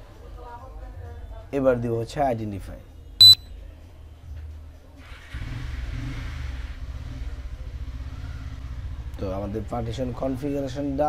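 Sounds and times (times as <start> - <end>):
high-pitched electronic beep: 3.2 - 3.5.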